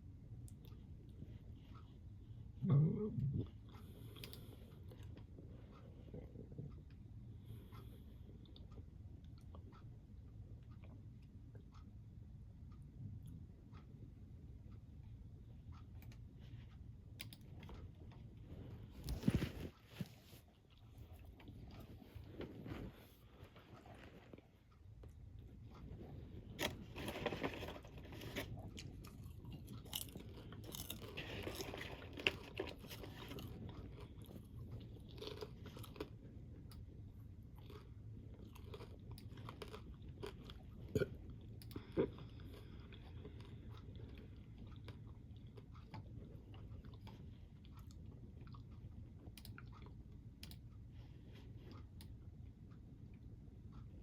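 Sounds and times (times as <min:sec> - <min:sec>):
person chewing crunchy snack: 0:26.5 - 0:48.7.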